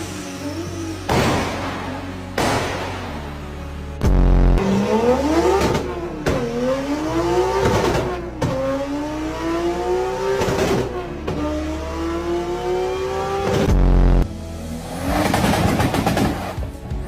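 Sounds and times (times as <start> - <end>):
car engine revving hard: 4.0 - 16.6.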